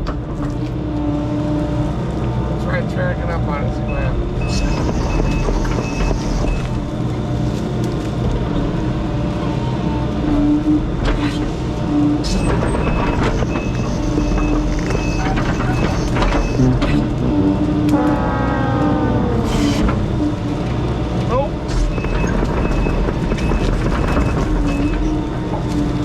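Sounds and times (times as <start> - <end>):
excavator diesel engine working: 0.0 - 26.0
travel alarm beeping: 3.9 - 6.8, 12.4 - 16.7, 21.9 - 25.2
whining tone falling in pitch: 17.2 - 20.6.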